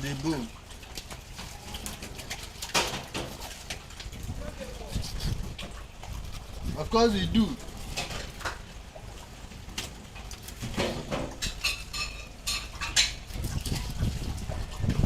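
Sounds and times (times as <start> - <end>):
utensils and dishes clinking: 10.7 - 13.5.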